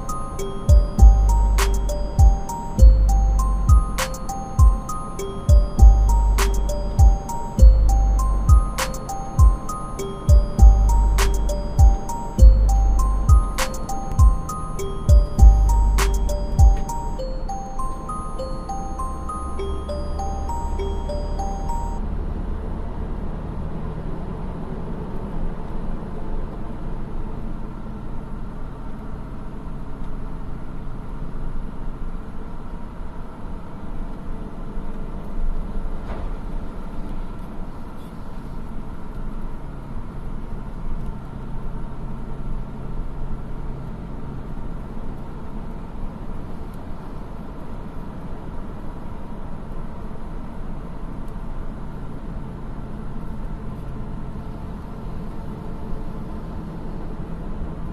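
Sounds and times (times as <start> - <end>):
diesel engine running: 0.0 - 25.2.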